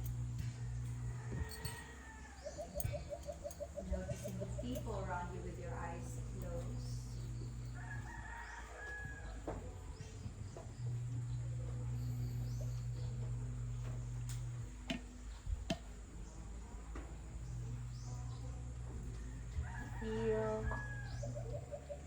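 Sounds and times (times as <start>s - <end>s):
steady low hum: 0.0s - 22.0s
rooster crowing: 0.5s - 5.0s, 7.6s - 9.7s, 19.3s - 22.0s.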